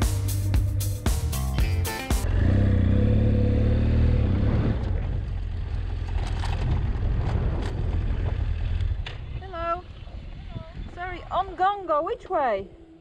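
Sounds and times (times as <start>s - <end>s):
music: 0.0s - 2.3s
motorcycle engine running: 0.0s - 11.5s.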